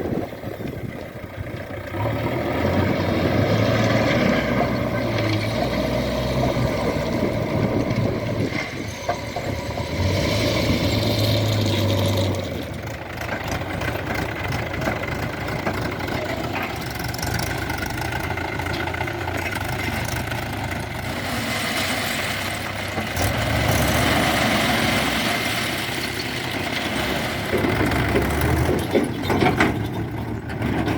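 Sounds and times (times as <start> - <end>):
diesel engines running: 0.0 - 30.9.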